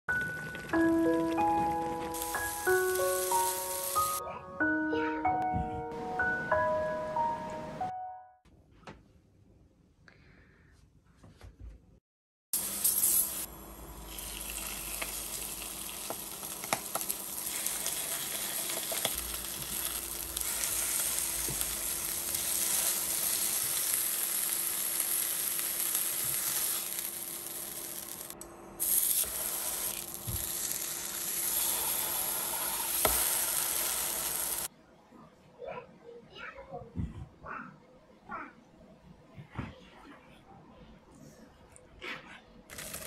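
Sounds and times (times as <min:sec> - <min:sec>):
chicken sizzling in frying pan: 0:02.0 - 0:04.2, 0:12.6 - 0:34.7.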